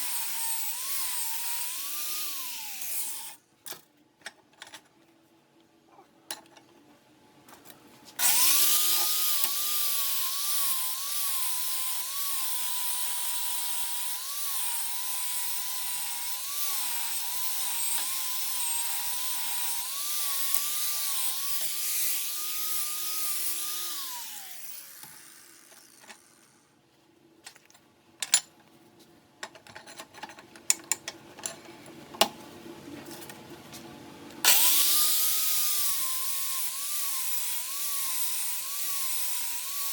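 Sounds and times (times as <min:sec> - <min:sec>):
angle grinder grinding steel: 0:00.0 - 0:03.4, 0:08.2 - 0:26.6, 0:34.4 - 0:39.9
grinder winding down: 0:08.2 - 0:26.6, 0:34.4 - 0:39.9.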